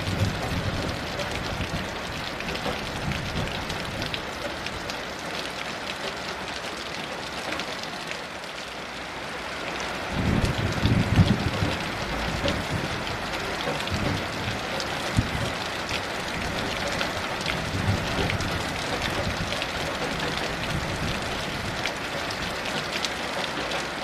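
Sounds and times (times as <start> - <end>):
distant thunder rumble: 0.0 - 4.2, 10.1 - 22.8
heavy rain falling: 0.0 - 24.0.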